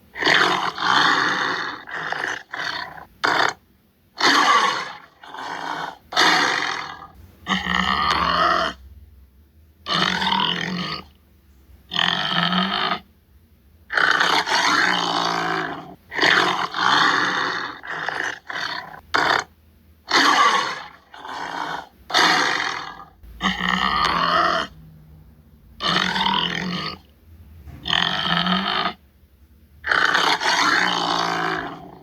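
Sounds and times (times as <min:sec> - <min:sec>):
tiger roaring and grunting: 0:00.1 - 0:03.6, 0:04.2 - 0:08.8, 0:09.8 - 0:11.2, 0:13.9 - 0:19.5, 0:20.1 - 0:24.8, 0:25.8 - 0:27.1, 0:27.8 - 0:29.0, 0:29.8 - 0:32.0.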